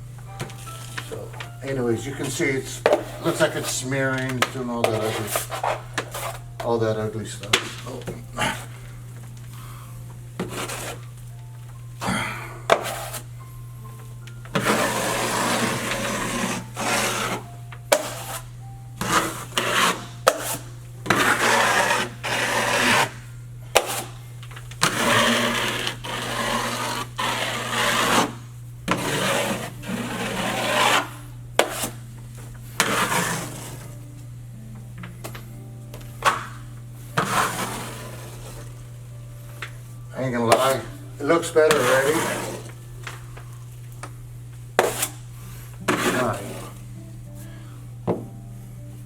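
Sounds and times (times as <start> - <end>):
steady low hum: 0.0 - 49.0
drywall blade scraping compound: 2.2 - 6.8, 10.4 - 11.1, 12.7 - 13.3, 14.5 - 24.2, 24.8 - 32.0, 32.8 - 34.0, 37.2 - 38.8, 40.3 - 42.8, 44.8 - 46.8.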